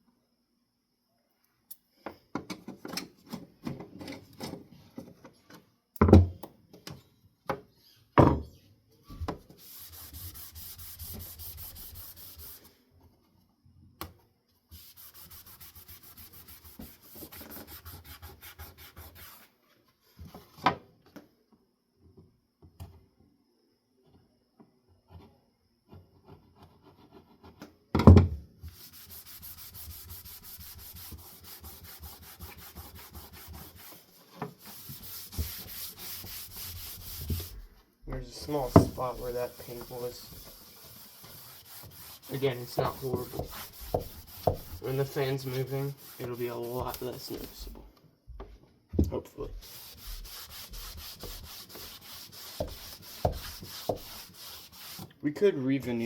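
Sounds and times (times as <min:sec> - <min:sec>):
rubbing on wooden fan blade: 0:09.6 - 0:12.7, 0:14.7 - 0:19.4, 0:28.7 - 0:47.8, 0:49.5 - 0:55.1.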